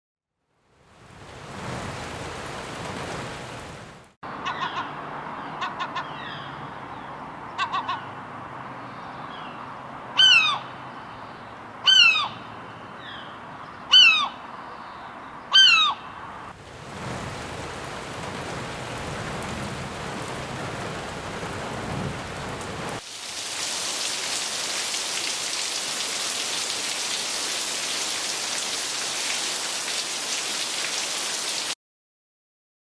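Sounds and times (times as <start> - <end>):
rain hissing: 0.7 - 4.2, 16.5 - 31.8
seagull cries: 4.4 - 6.6, 7.6 - 8.1, 10.2 - 10.7, 11.8 - 12.4, 13.9 - 14.4, 15.5 - 16.1.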